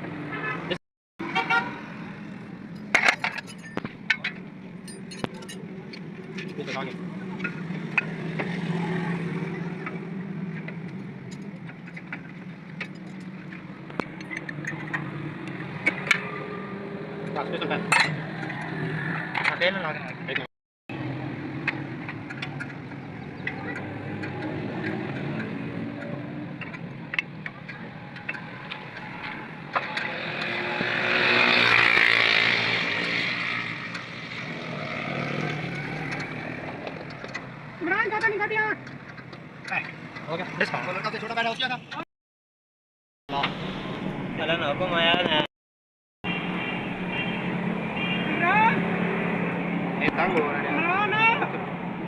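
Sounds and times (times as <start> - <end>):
vehicle passing by: 28.0 - 36.9.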